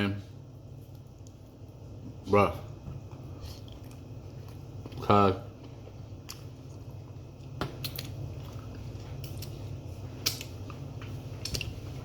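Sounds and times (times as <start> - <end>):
steady low hum: 0.0 - 12.0
person chewing food: 3.0 - 12.0.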